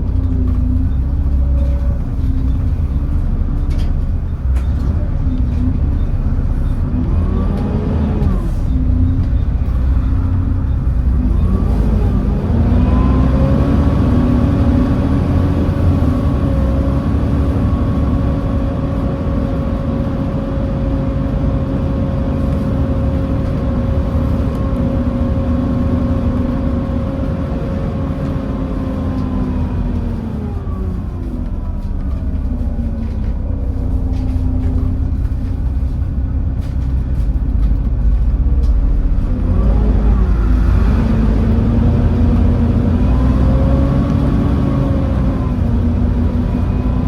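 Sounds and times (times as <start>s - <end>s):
bus engine rumble: 0.0s - 47.0s.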